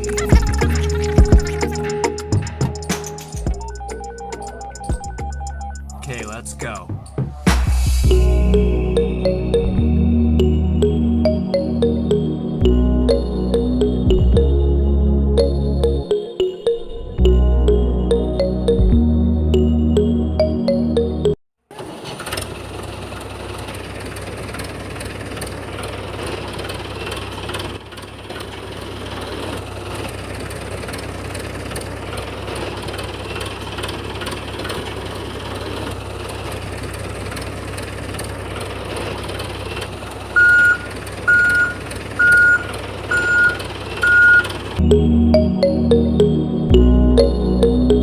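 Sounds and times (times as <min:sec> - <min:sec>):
vehicle engine running: 0:00.0 - 0:16.0, 0:21.8 - 0:48.0
high reversing beeps: 0:03.4 - 0:06.6, 0:40.4 - 0:48.0.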